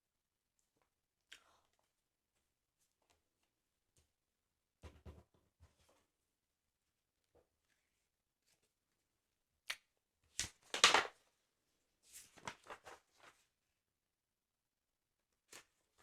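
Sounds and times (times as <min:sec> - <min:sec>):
paper crackling: 0:12.1 - 0:13.4
paper rustling: 0:12.1 - 0:13.5.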